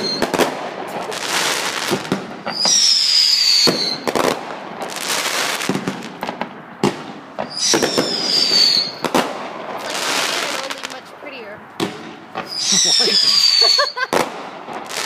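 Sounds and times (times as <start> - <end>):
falling firework whistle: 0.0 - 0.4, 2.5 - 4.2, 7.4 - 9.2, 12.4 - 14.3
firework bangs: 0.0 - 15.0
firework crackling: 0.0 - 15.0.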